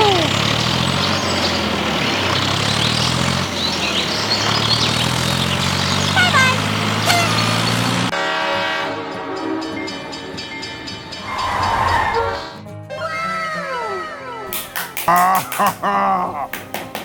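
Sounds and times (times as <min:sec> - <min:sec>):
engine humming: 0:00.0 - 0:08.1.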